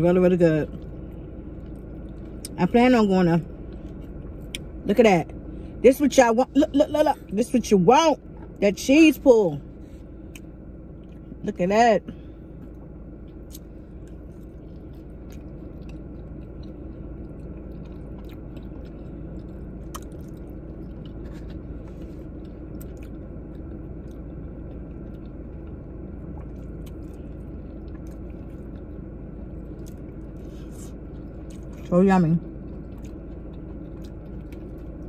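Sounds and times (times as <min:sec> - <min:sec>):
steady low hum: 0:00.0 - 0:35.0
wet squishy chewing: 0:12.6 - 0:31.9, 0:32.5 - 0:35.0.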